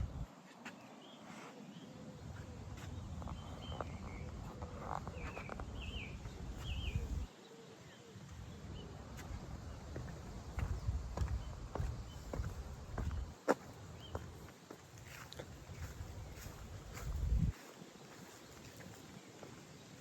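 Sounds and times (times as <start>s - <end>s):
wind rumble on microphone: 0.0s - 0.3s, 2.6s - 7.3s, 8.5s - 13.3s, 15.1s - 17.6s
small birds chirping: 0.0s - 20.0s
footsteps on path: 9.1s - 19.8s.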